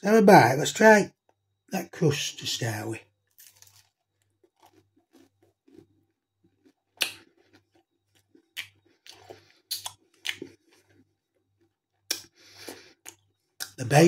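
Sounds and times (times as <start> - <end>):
person chewing: 3.3 - 13.8.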